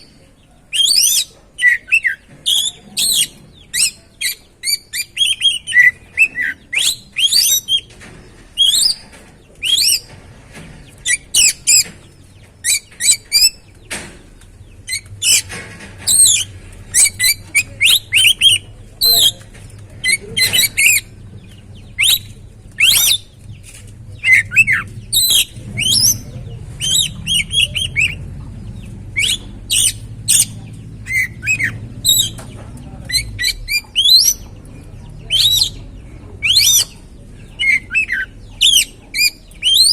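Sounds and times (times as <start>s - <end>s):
bird singing whistles and chirps: 4.6s - 7.8s, 22.0s - 23.3s, 29.2s - 30.5s, 33.1s - 34.5s, 36.4s - 37.0s, 37.6s - 39.9s.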